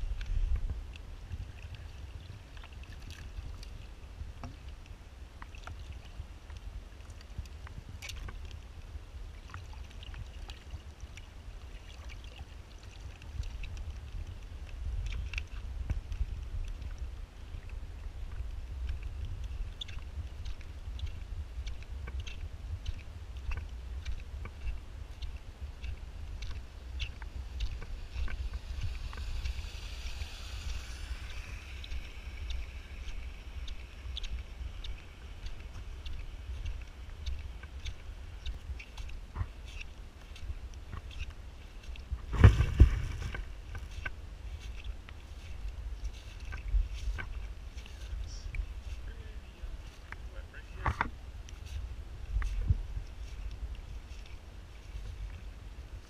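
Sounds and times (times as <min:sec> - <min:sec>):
rain rumbling on microphone: 0:00.0 - 0:56.0
sharp rain ticks: 0:26.4 - 0:39.4.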